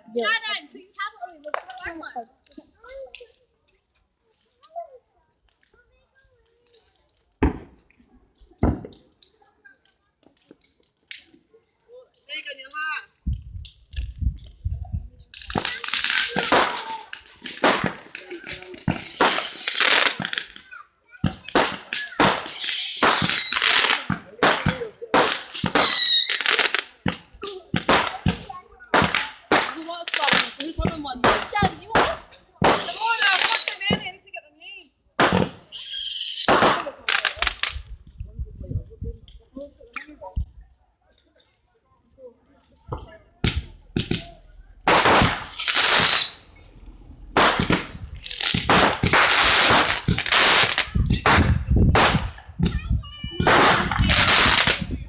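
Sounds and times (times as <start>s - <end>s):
fireworks bangs and crackles: 5.5s - 11.4s, 13.3s - 34.4s, 35.2s - 40.6s, 42.8s - 55.0s
firework whistle: 18.9s - 20.2s, 22.3s - 23.9s, 25.7s - 26.5s, 32.7s - 33.8s, 35.6s - 36.6s, 44.9s - 46.6s
short high whistle: 45.4s - 46.5s.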